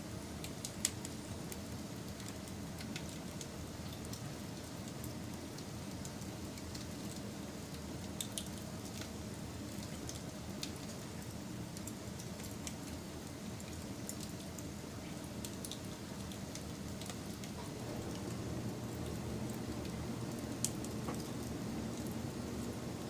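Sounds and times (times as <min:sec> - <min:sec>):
burning wood crackling and popping: 0:00.4 - 0:23.0
campfire flames rushing: 0:15.4 - 0:23.0.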